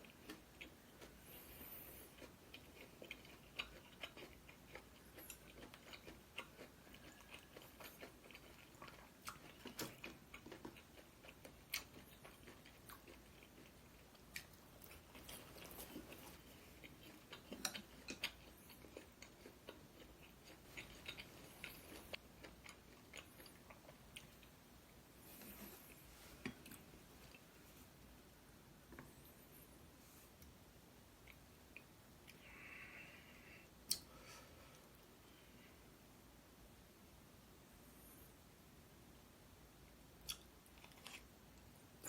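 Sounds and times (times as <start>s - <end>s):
person chewing food: 0.0s - 28.0s, 40.2s - 42.0s.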